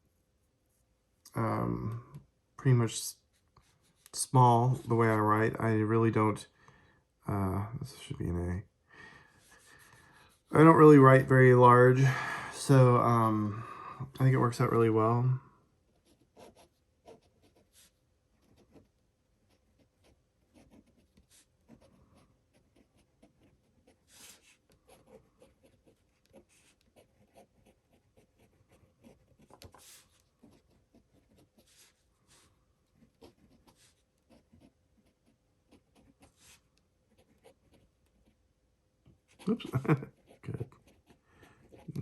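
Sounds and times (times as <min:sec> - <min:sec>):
pen nib scratching on paper: 0:19.5 - 0:32.0.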